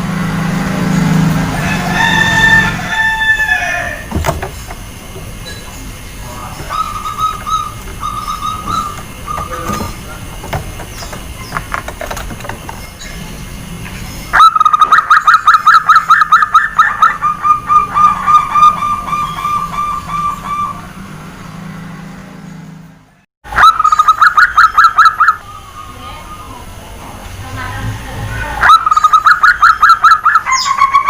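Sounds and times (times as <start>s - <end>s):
dove cooing: 3.5s - 12.8s, 14.4s - 21.0s.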